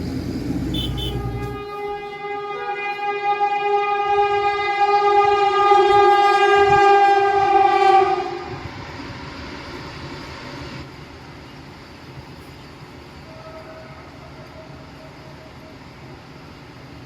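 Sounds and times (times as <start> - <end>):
train running noise: 0.0 - 17.0
train horn blast: 0.6 - 8.8.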